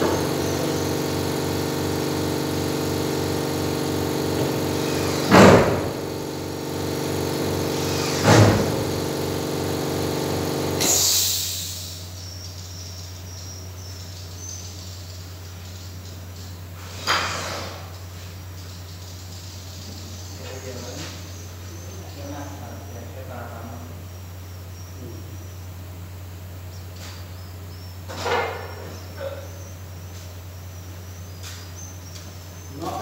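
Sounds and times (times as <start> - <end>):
machine motor humming: 0.0 - 11.1
loud knocks: 5.2 - 6.0, 8.2 - 8.8.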